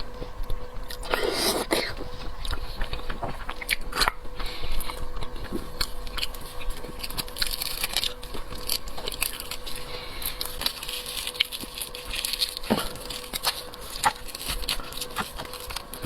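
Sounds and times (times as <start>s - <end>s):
faint electrical hum: 0.0s - 16.0s
person chewing and biting: 0.0s - 16.0s.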